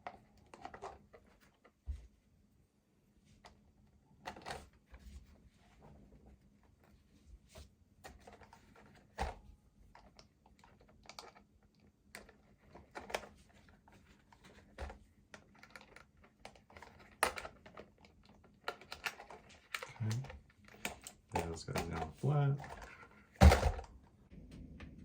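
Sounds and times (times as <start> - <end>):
hard plastic clicking and rattling: 8.0 - 25.0.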